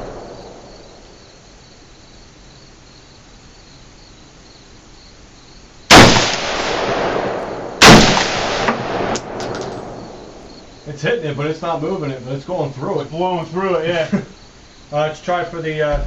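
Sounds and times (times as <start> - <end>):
rifle shots with rolling echo: 0.0 - 1.4, 5.9 - 10.8
faint insect buzz: 0.0 - 5.9, 9.8 - 16.0.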